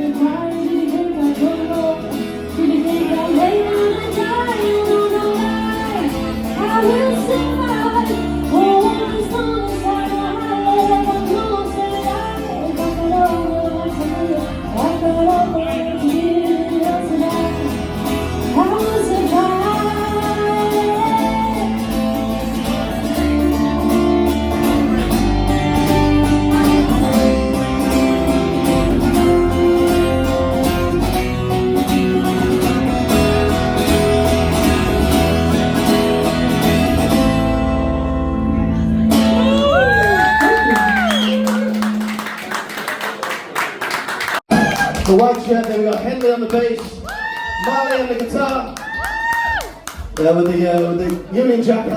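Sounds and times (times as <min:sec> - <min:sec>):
person singing: 0:00.0 - 0:30.6
bass guitar: 0:00.0 - 0:42.4
guitar: 0:00.0 - 0:51.9.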